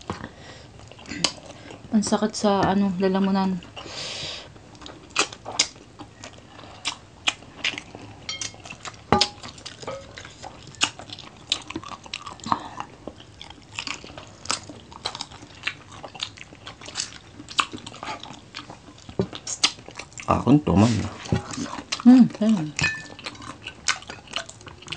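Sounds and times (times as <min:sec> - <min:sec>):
crunchy chewing: 0:04.6 - 0:20.5, 0:22.7 - 0:24.9.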